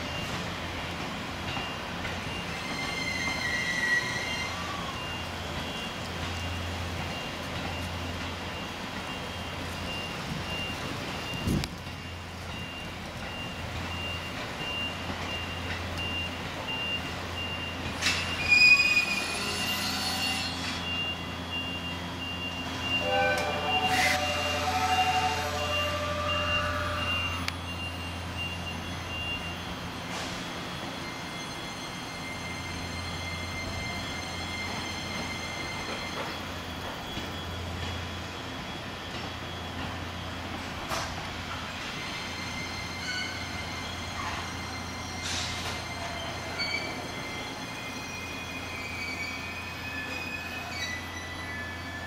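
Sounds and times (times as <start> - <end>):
steel wheel squeal on rails: 0.0 - 52.0
high electronic warning beep: 1.5 - 40.7.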